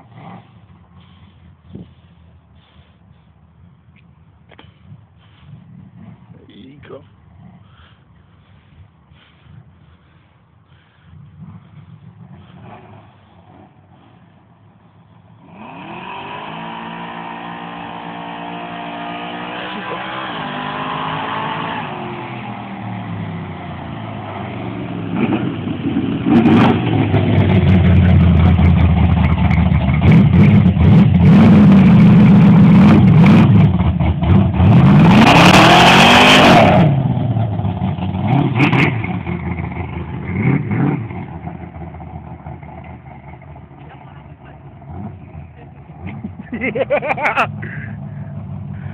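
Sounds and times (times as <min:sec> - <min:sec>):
car engine revving: 0:15.1 - 0:48.9.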